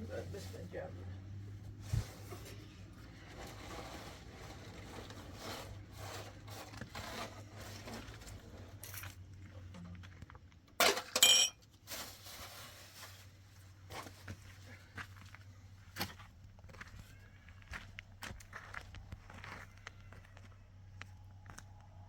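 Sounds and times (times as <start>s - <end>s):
handling and shuffling: 0.0s - 10.3s, 11.2s - 19.9s
metallic clatter: 10.8s - 11.6s.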